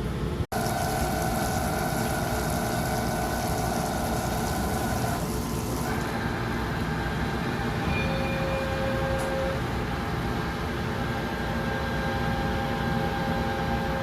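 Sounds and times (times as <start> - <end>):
lathe machine noise: 0.5 - 6.6.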